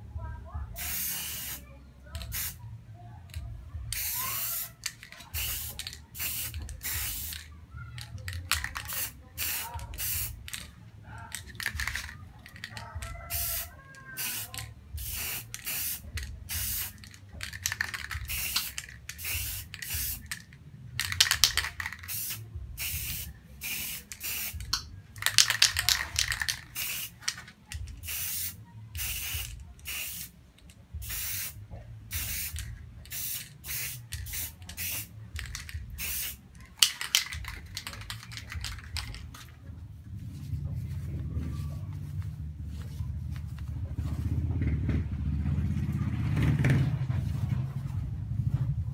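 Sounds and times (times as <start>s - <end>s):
spray paint can hissing: 0.8s - 1.6s, 2.2s - 2.6s, 3.9s - 10.7s, 11.3s - 30.3s, 31.0s - 39.5s.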